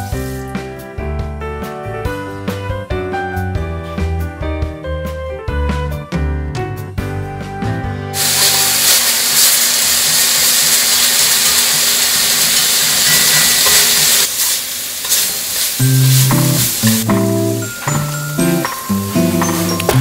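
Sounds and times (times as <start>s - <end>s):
carrots sizzling in hot oil: 0.0s - 0.5s, 8.2s - 20.0s.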